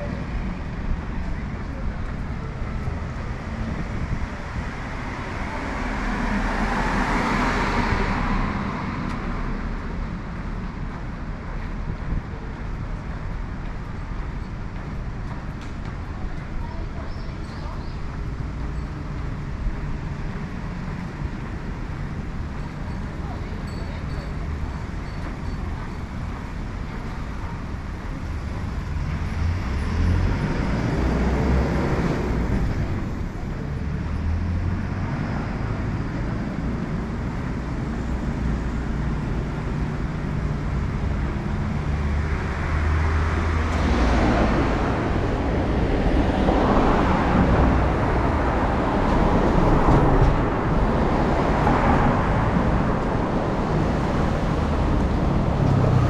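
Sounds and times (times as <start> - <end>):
low traffic rumble: 0.0 - 56.0
motor vehicles passing: 28.4 - 56.0.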